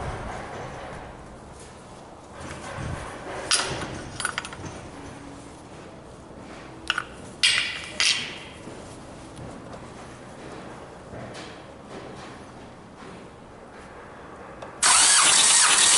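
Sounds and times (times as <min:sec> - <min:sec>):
metal tools clinking: 0:03.5 - 0:05.2.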